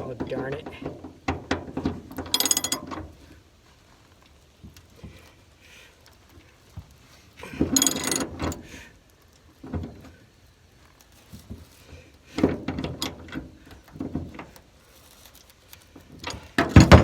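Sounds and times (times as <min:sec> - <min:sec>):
hand tools clattering: 0:00.0 - 0:03.2, 0:07.4 - 0:08.7, 0:16.2 - 0:17.0.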